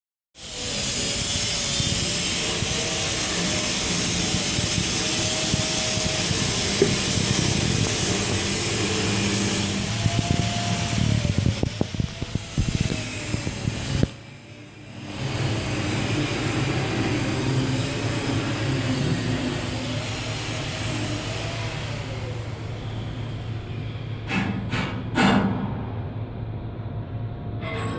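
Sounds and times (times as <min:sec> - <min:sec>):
machinery hiss: 0:00.4 - 0:26.0
machinery low rumble: 0:15.0 - 0:20.4, 0:21.9 - 0:27.9.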